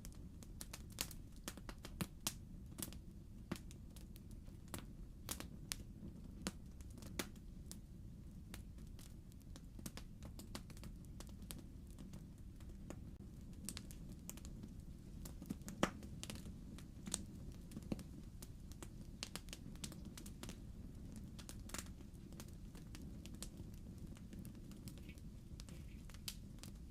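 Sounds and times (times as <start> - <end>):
fire crackling and popping: 0.0 - 26.9
low fire rumble: 0.0 - 26.9.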